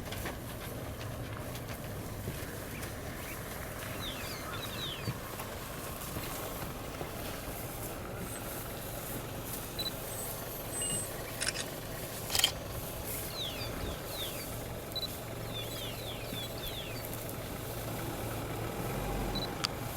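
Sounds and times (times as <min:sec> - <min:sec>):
steady low rumble: 0:00.0 - 0:10.4, 0:11.0 - 0:19.9
bird chirping: 0:02.6 - 0:05.3, 0:09.8 - 0:17.2
sharp clicks: 0:11.2 - 0:12.7.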